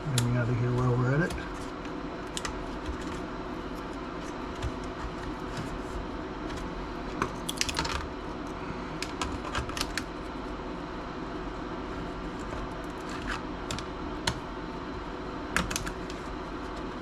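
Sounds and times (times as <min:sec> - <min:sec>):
laptop parts clicking and tapping: 0:15.6 - 0:16.2.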